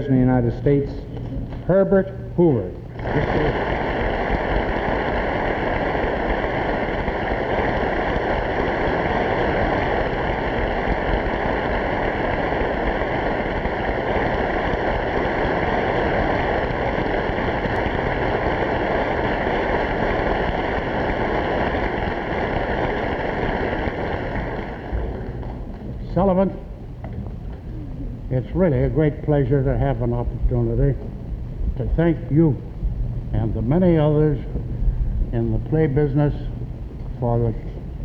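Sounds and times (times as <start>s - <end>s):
audience applauding: 3.0s - 14.7s.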